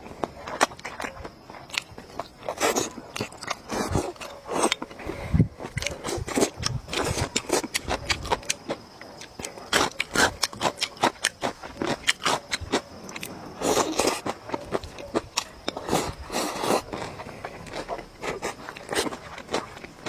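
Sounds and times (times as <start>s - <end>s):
person chewing and biting food: 0.2s - 20.0s.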